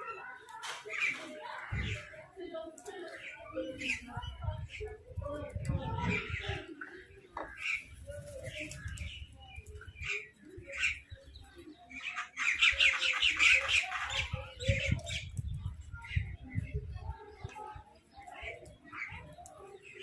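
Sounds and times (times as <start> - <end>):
crows and mynahs calling: 6.0 - 8.0.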